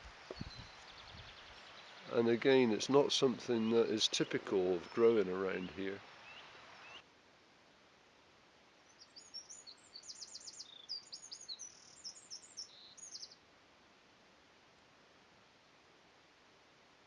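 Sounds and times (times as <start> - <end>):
faint outdoor background hiss: 0.0 - 17.0
songbird chirping and trilling: 0.2 - 7.0, 8.8 - 13.4.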